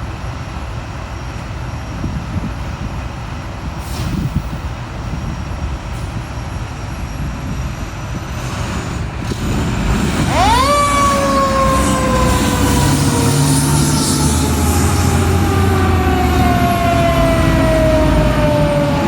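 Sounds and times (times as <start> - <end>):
heavy vehicle engines and traffic: 0.0 - 19.0
fire engine siren wailing: 9.9 - 19.0.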